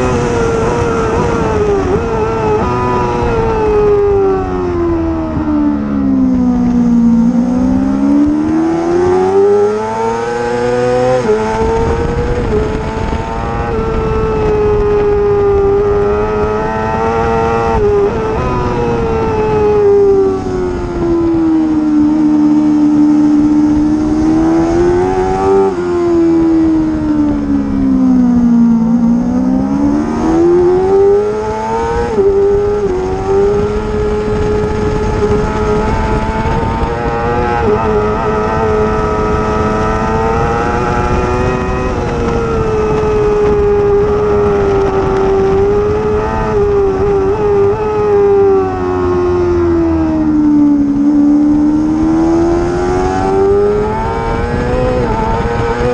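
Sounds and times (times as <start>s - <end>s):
racing motorcycle engine revving: 0.0s - 55.9s.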